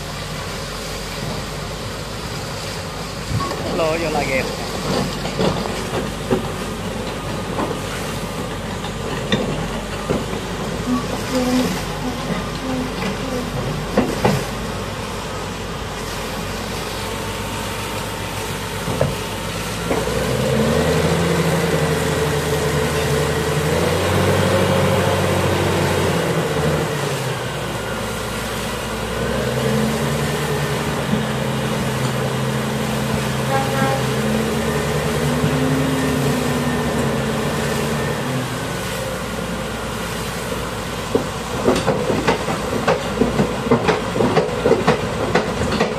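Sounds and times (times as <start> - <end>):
diesel engine running: 0.0 - 45.9
engine knocks: 4.6 - 11.3, 41.1 - 45.9.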